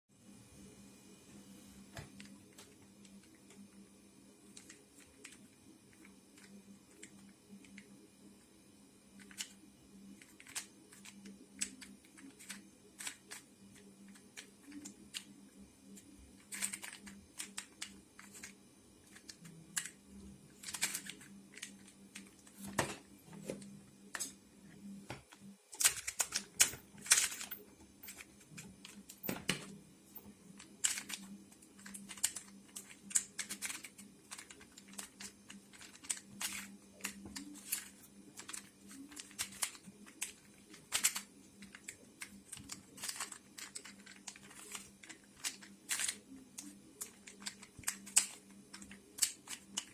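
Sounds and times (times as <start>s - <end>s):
faint low hum: 0.1s - 49.9s
puzzle cube pieces clicking: 10.2s - 15.3s, 16.0s - 20.0s, 20.6s - 22.6s, 25.8s - 29.8s, 30.6s - 49.9s.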